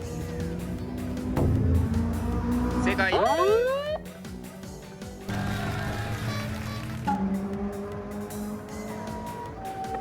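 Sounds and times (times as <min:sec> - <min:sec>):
background music with low tones: 0:00.0 - 0:10.0.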